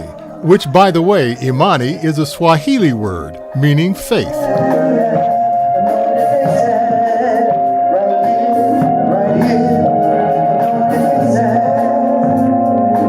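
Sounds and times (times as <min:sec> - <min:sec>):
gospel singing: 0:00.0 - 0:13.0
held keyboard chords: 0:00.0 - 0:13.0.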